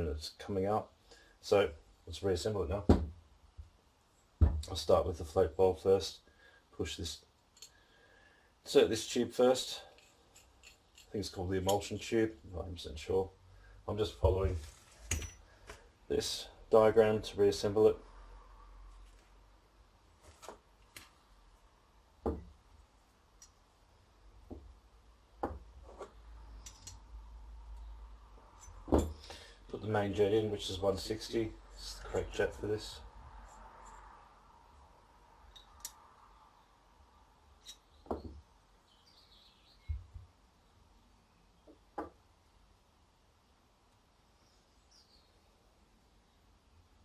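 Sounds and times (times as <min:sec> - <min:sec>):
parts knocking on workbench: 0:04.4 - 0:04.6, 0:25.4 - 0:25.6, 0:28.9 - 0:29.2
small metal parts clicking: 0:09.9 - 0:11.2, 0:26.6 - 0:27.0.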